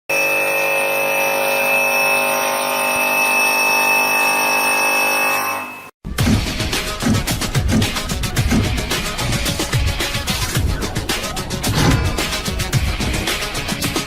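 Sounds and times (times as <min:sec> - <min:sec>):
stone-cutting machine whining: 0:00.1 - 0:05.9
rhythmic music: 0:06.1 - 0:14.0.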